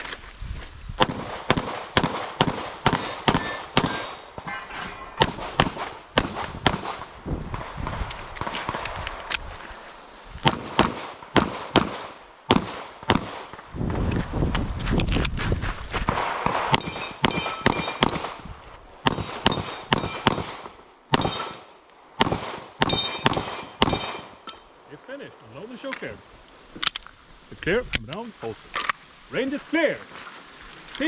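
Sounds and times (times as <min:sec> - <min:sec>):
pistol shots: 0:01.0 - 0:04.6, 0:05.2 - 0:07.1, 0:10.4 - 0:13.6, 0:16.1 - 0:18.4, 0:19.0 - 0:24.4.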